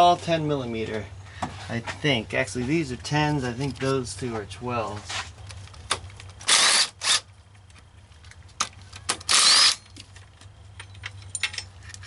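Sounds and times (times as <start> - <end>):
power tool spinning bolts: 6.4 - 7.3, 9.2 - 9.8.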